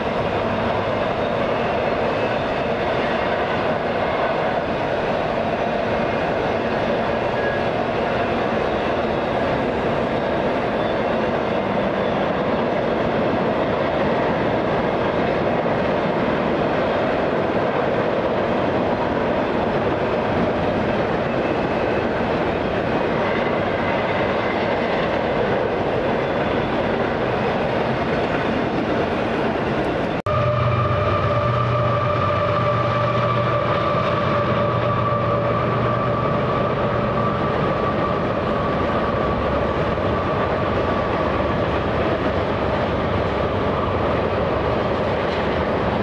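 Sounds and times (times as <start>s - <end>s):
train rail noise: 0.0s - 46.0s.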